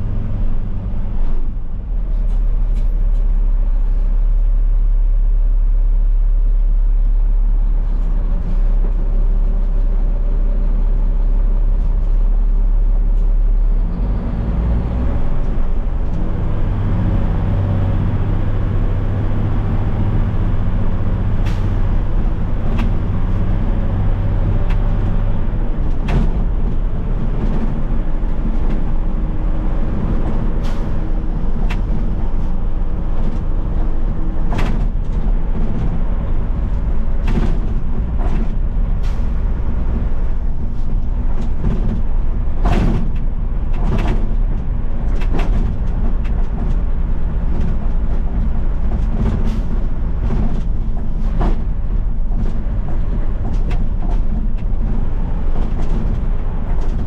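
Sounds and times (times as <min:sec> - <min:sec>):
road drone: 0:00.0 - 0:57.0
garbage truck engine: 0:07.9 - 0:57.0
truck rattling clicks and knocks: 0:14.8 - 0:57.0.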